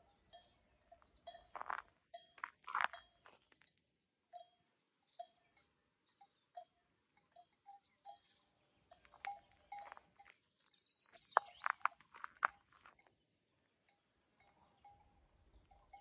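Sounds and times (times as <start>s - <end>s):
birds singing whistled notes: 0.0s - 1.4s, 3.9s - 6.6s, 7.2s - 9.8s, 10.6s - 11.9s.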